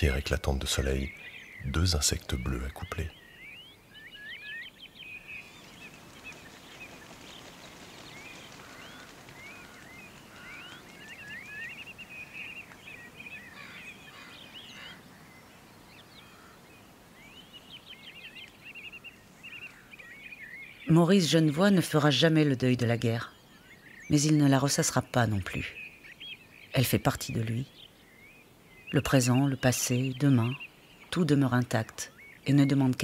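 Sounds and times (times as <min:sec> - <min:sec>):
faint steady hiss: 0:00.0 - 0:21.7
birds chirping and trilling: 0:00.0 - 0:33.0.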